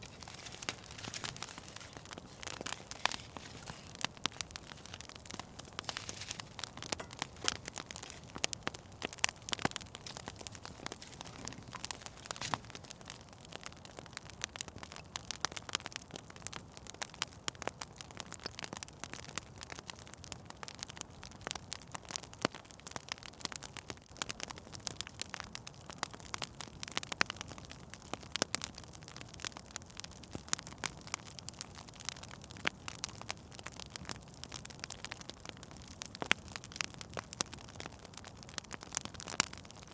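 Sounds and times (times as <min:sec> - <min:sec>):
low steady hiss: 0:00.0 - 0:13.0
fire crackling and popping: 0:00.0 - 0:39.9.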